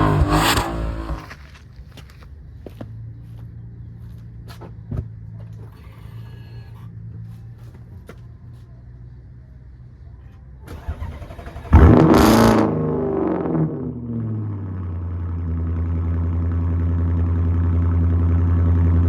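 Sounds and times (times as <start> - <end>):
car engine starting and revving: 0.0 - 1.3, 10.7 - 19.0.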